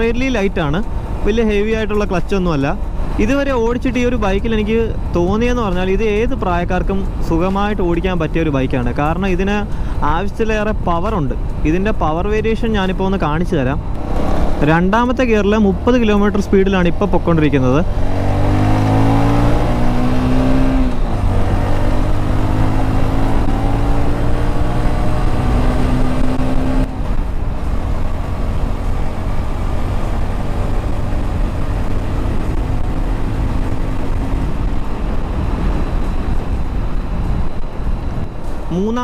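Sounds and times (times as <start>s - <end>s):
wind rush: 9.3s - 15.1s, 17.8s - 39.0s
motorcycle engine accelerating: 13.8s - 39.0s.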